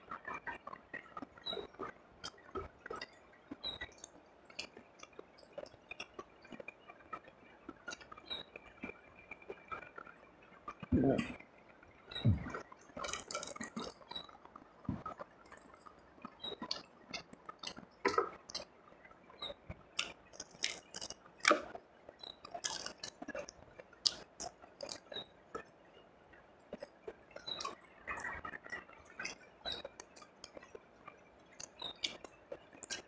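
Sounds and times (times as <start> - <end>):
person chewing and eating: 12.2 - 15.9, 20.0 - 21.7, 22.4 - 25.1.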